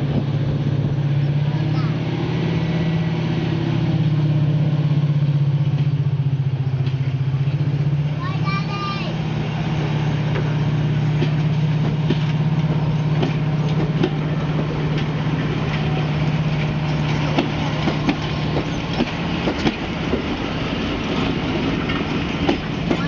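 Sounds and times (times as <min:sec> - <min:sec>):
train engine drone: 0:00.0 - 0:23.0
wheels clicking over rail joints: 0:05.5 - 0:23.0.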